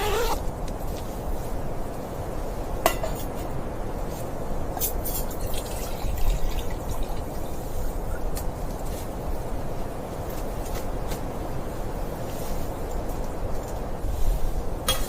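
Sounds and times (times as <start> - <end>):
low wind rumble: 0.0 - 14.9.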